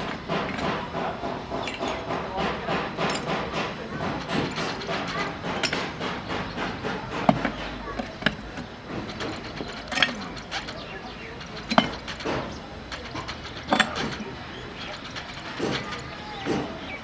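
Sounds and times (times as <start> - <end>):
sharp metallic clanks: 0.0 - 17.0
workshop background noise: 0.0 - 17.0.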